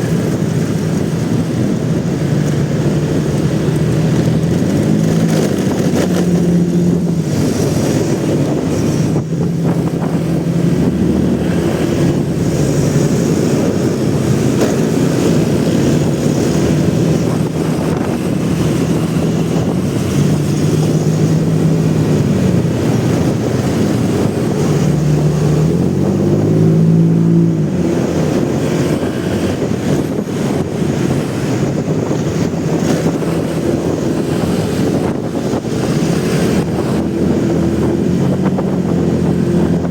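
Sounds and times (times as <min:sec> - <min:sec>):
motorcycle engine revving: 0:00.0 - 0:39.9
wind rushing over microphone: 0:00.0 - 0:39.9.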